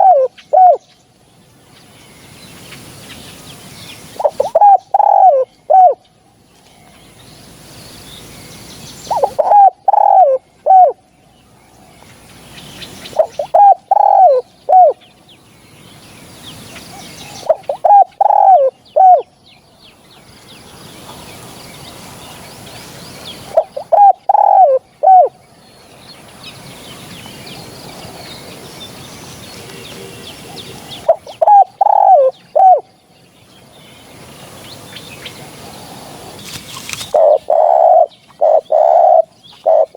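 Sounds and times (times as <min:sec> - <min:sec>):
dove cooing: 0:00.0 - 0:00.8, 0:04.1 - 0:06.0, 0:09.1 - 0:11.0, 0:13.1 - 0:15.0, 0:17.3 - 0:19.3, 0:23.5 - 0:25.4, 0:29.6 - 0:32.9, 0:37.0 - 0:39.9
small birds chirping: 0:00.0 - 0:39.9.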